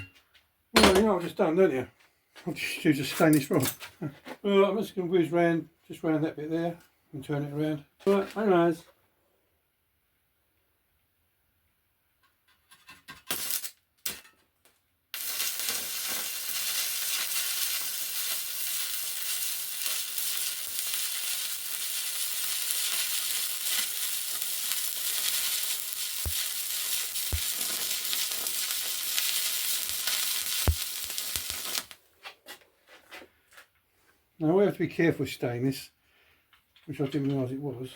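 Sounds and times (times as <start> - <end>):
welding arc crackling hiss: 13.3 - 13.7, 15.1 - 32.0.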